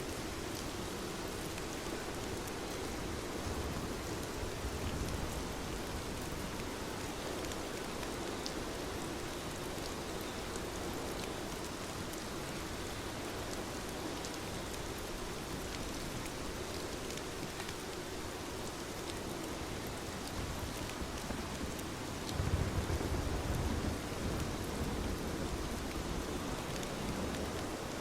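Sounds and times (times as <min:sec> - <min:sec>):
rain pattering: 0:00.0 - 0:28.0
rain drop ticks: 0:15.5 - 0:18.0, 0:19.0 - 0:25.2, 0:25.8 - 0:27.7.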